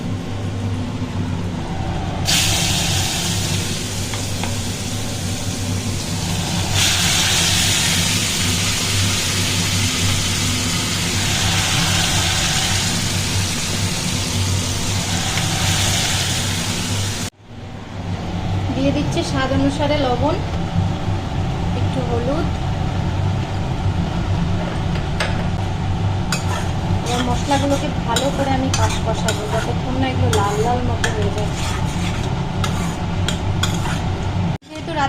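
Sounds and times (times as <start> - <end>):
steady low hum: 0.0 - 35.0
paste sizzling in hot oil: 2.3 - 17.3.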